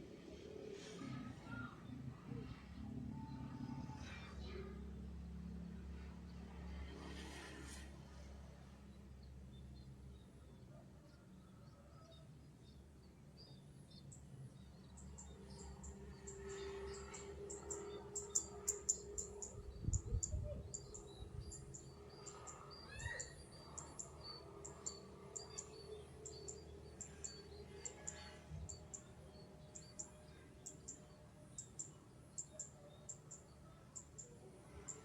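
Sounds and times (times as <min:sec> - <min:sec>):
faint rural background: 0:00.0 - 0:35.0.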